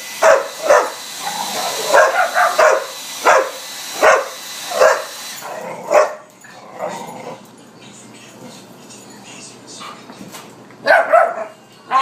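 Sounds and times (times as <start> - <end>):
hair dryer hissing: 0.0 - 5.6
dog barking: 0.2 - 1.0, 1.6 - 5.1, 5.8 - 6.3, 10.8 - 11.6.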